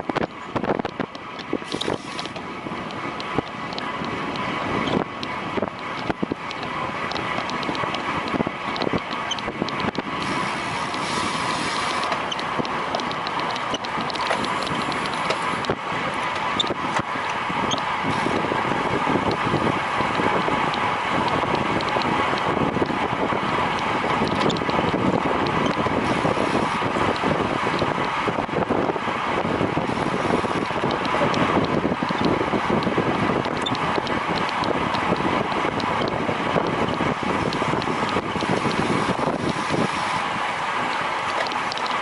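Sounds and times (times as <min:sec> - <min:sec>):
wind rushing over microphone: 0:00.0 - 0:42.0
small clicks: 0:00.2 - 0:16.8, 0:23.7 - 0:26.4, 0:30.4 - 0:39.7, 0:40.9 - 0:42.0.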